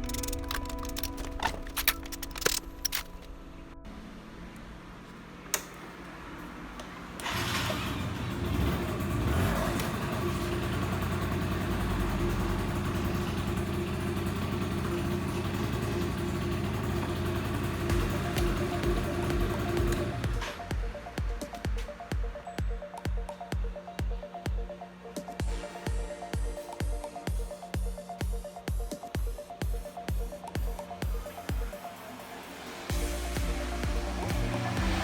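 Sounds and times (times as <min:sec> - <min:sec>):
scooter two-stroke engine running: 0:00.0 - 0:02.7, 0:07.2 - 0:35.0
click: 0:05.5 - 0:05.8.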